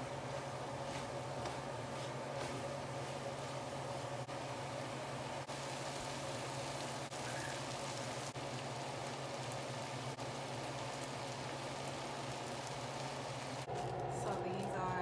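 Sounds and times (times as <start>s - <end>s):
meat sizzling in a skillet: 2.7s - 13.7s.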